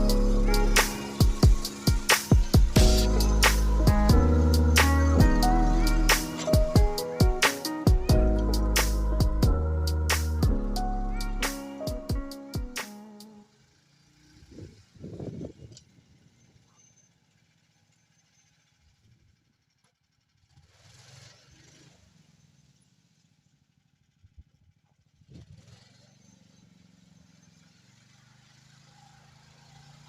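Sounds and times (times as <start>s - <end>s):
snowmobile engine running: 0.0s - 11.6s.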